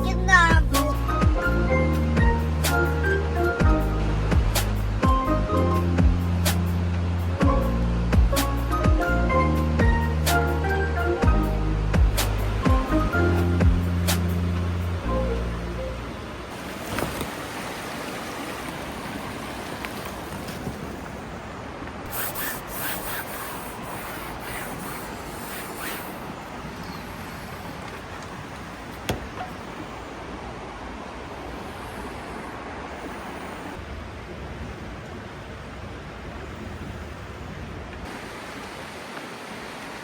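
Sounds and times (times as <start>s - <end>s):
mountain stream rushing: 0.0s - 40.0s
short taps: 29.0s - 29.5s.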